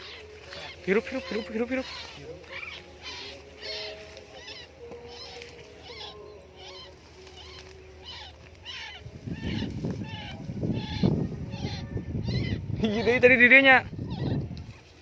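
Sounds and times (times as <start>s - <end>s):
rough rustling: 0.0s - 11.7s
bird harsh calls: 0.0s - 15.0s.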